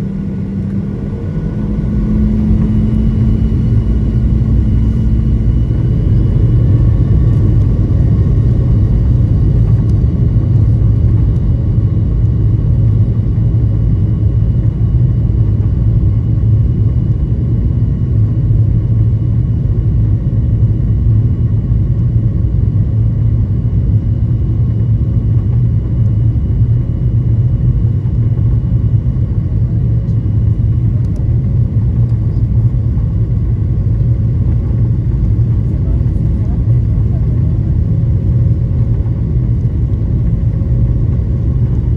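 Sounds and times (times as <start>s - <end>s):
jet engines rumbling: 0.0s - 16.9s, 24.7s - 41.9s
faint engine whines: 0.0s - 41.9s.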